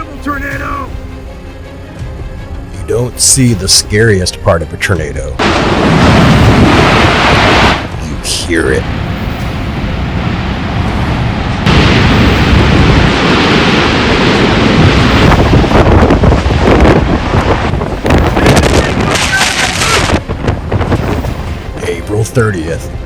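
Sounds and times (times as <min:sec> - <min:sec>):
wind buffeting microphone: 0:05.4 - 0:22.0
tornado roar: 0:05.4 - 0:22.7.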